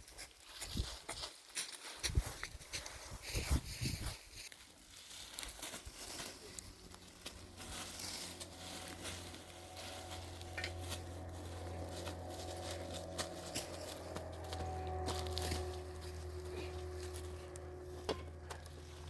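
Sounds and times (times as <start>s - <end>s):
light crackling and rustling: 0.0s - 19.0s
steady low hum: 5.8s - 19.0s.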